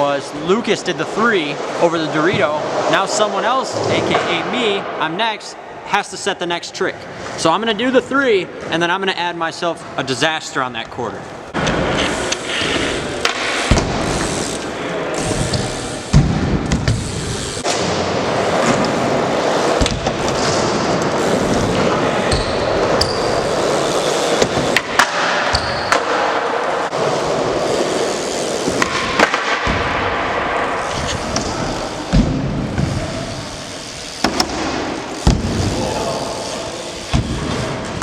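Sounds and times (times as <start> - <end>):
bike tyres rolling on ramps: 11.6 - 38.0
bike landing knocks: 34.2 - 35.8.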